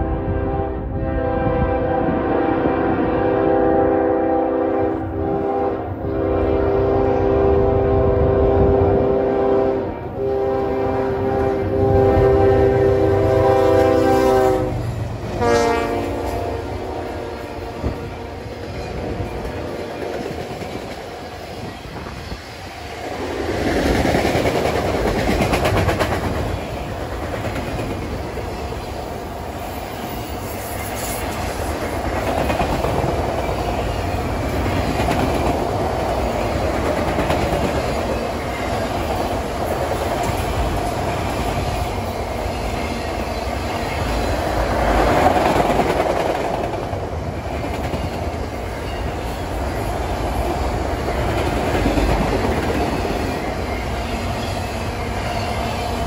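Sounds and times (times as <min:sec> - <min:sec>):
train rumble: 0:00.0 - 0:56.0
train wheels clacking over rail joints: 0:23.6 - 0:28.5, 0:30.9 - 0:49.6.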